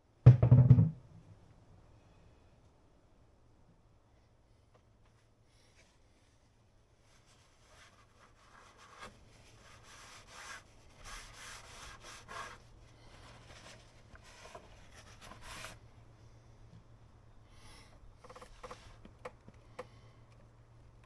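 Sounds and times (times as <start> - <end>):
rubbing and rustling of parts: 18.2 - 20.5.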